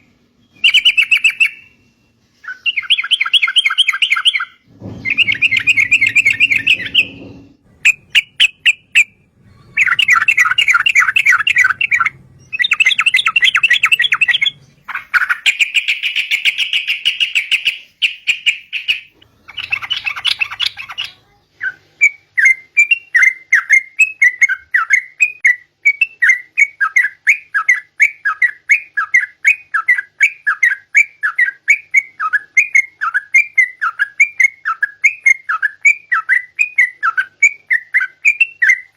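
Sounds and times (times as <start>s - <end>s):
bird singing chattering phrases: 7.8s - 25.5s.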